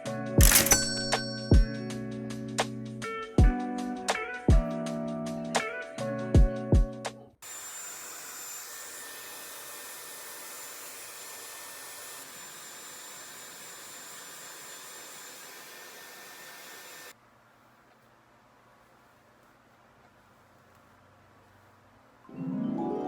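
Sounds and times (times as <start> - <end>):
electric blower rushing air: 7.4 - 17.2.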